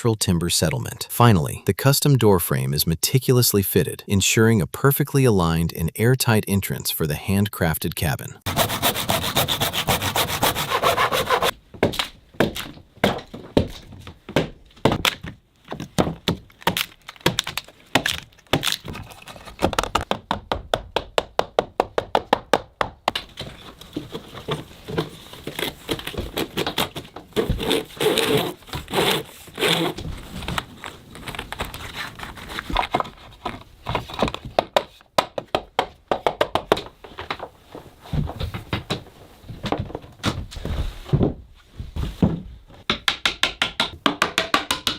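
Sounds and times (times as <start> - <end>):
tool rasping wood: 8.5 - 11.5, 24.2 - 30.1
knocks and cracks on wood: 11.2 - 27.8, 32.6 - 37.5.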